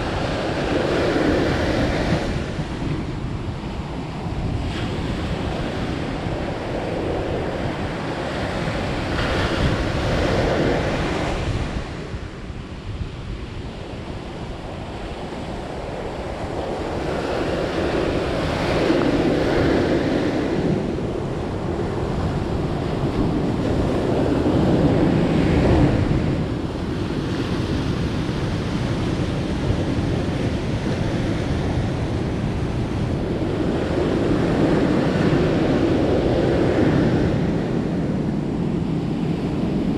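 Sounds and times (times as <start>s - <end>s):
ocean surf breaking on shore: 0.0s - 39.9s.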